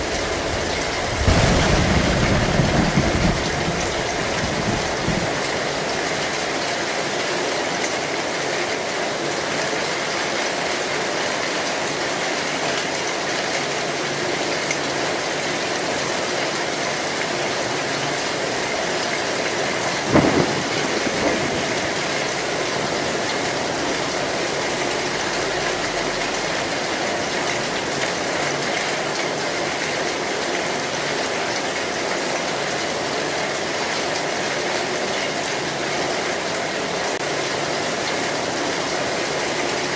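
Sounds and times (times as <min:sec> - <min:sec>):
heavy rain on metal roof: 0:00.0 - 0:39.9
loud crack: 0:01.1 - 0:05.0.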